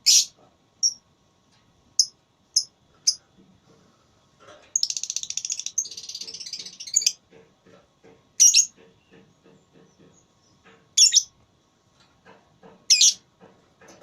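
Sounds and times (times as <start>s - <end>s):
lovebird chattering trill: 0.0s - 1.0s, 2.0s - 3.2s, 4.8s - 7.2s, 8.4s - 8.7s, 11.0s - 11.3s, 12.9s - 13.2s
lovebird sharp chirps: 0.0s - 1.0s.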